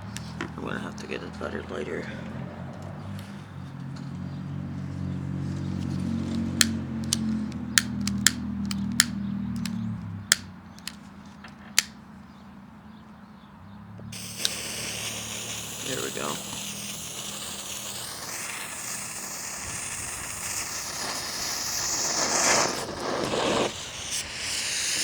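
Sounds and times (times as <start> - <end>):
low engine hum: 0.0 - 22.2
lighter igniter clicks: 6.5 - 11.0, 11.8 - 12.0, 14.2 - 25.0
fuse hissing: 14.2 - 25.0.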